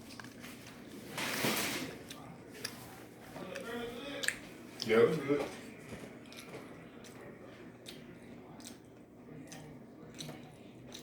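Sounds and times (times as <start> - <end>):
wet chewing: 0.0 - 0.9, 1.9 - 11.0
lip smacks and clicks: 3.5 - 5.0.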